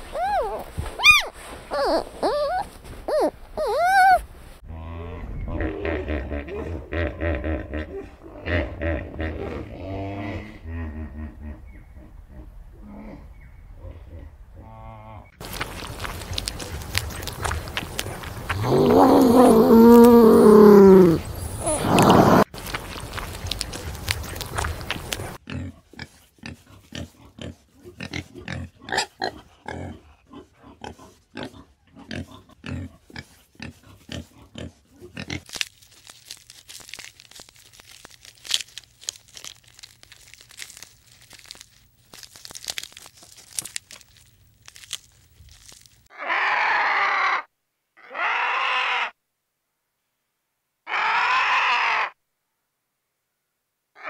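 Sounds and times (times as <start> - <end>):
animal chewing and crunching food: 0.0 - 4.5, 15.4 - 46.1
soft crunching of leaves: 0.0 - 4.6, 15.4 - 25.4, 35.0 - 46.1
loud harsh animal calls: 0.1 - 4.2, 46.1 - 49.2, 50.9 - 52.2.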